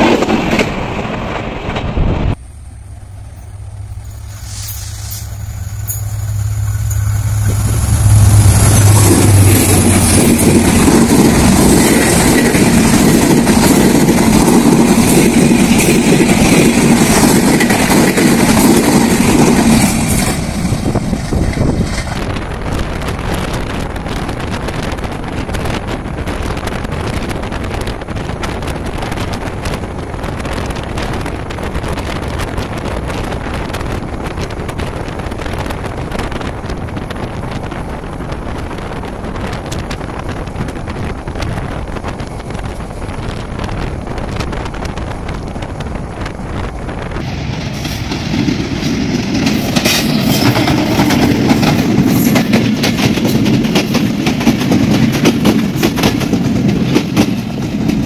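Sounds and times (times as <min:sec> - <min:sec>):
train engine hum: 0:00.0 - 0:58.0
train wheels rushing on rails: 0:00.0 - 0:58.0.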